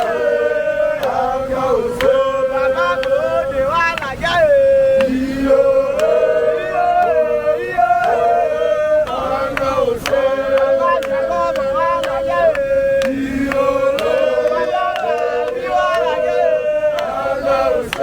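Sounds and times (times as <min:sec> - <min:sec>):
voices chanting in parts: 0:00.0 - 0:18.0
sharp claps: 0:01.0 - 0:01.4, 0:02.0 - 0:02.3, 0:02.9 - 0:04.2, 0:05.0 - 0:05.2, 0:05.9 - 0:06.3, 0:08.0 - 0:08.3, 0:09.0 - 0:16.2, 0:16.9 - 0:18.0.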